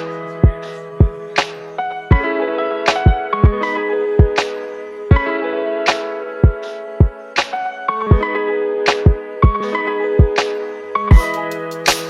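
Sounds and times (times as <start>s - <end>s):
kick drum: 0.4s - 1.3s, 3.0s - 3.6s, 6.4s - 7.2s, 11.1s - 11.3s.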